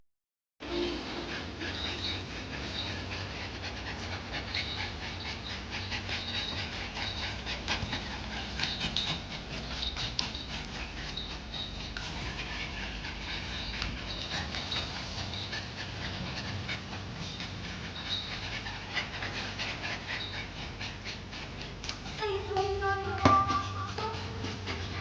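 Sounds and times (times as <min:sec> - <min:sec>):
high-pitched squeaks: 0:00.6 - 0:16.4, 0:22.2 - 0:25.0
dogs panting rapidly: 0:00.6 - 0:25.0.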